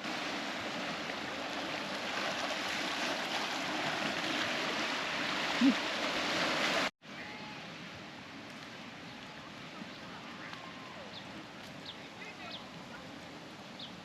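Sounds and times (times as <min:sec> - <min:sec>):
water washing over rocks: 0:00.0 - 0:06.9.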